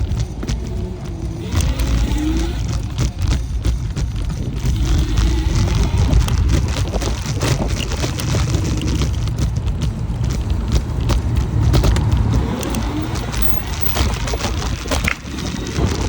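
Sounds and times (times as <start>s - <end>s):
faint motor whine: 0.0s - 6.5s
scooter clicking and rattling: 0.0s - 16.0s
wind and road rumble: 0.0s - 16.0s.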